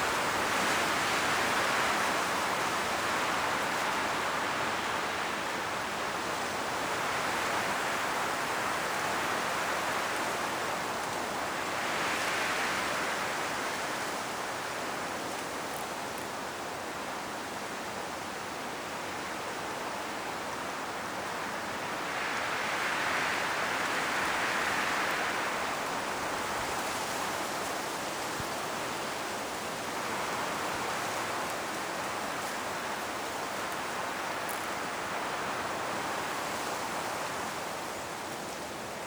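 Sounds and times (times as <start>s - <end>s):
wind rushing through trees: 0.0s - 39.0s
leaves rustling: 21.7s - 39.0s.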